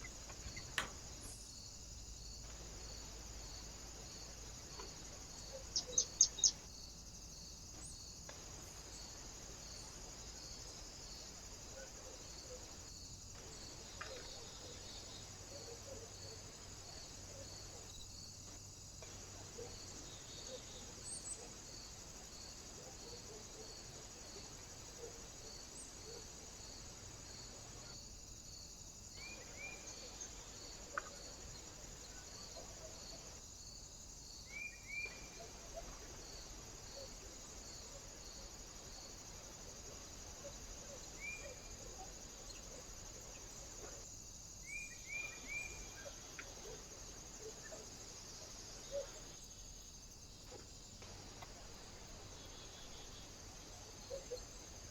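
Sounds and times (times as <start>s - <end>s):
steady high hiss: 0.0s - 54.9s
small birds chirping: 2.4s - 6.7s.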